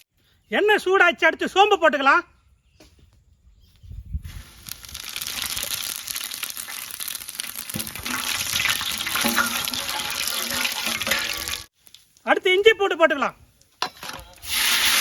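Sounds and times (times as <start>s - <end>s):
seeds sizzling in hot oil: 4.3s - 12.2s, 14.4s - 15.0s.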